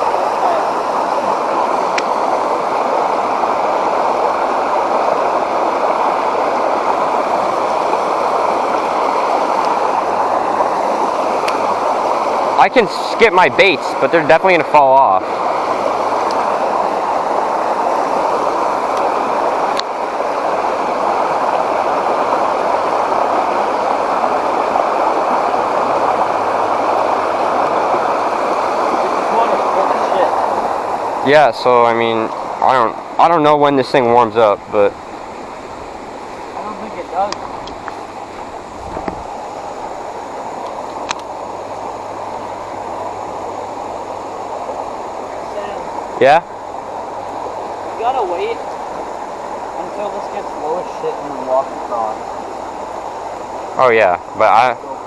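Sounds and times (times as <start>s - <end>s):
creek water rushing: 0.0s - 55.0s
small tick: 16.2s - 16.4s, 19.7s - 19.9s, 40.6s - 41.3s.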